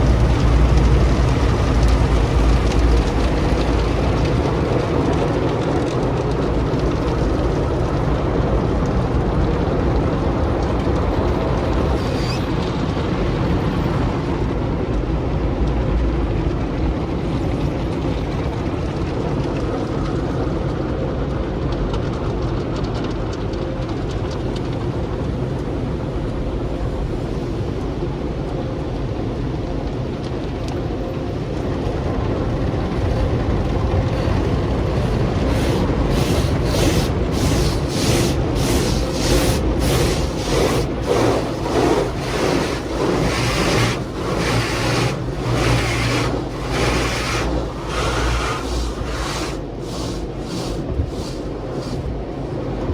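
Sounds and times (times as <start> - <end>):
car wash equipment rumbling: 0.0 - 52.9
rhythmic hissing swish: 34.9 - 52.4.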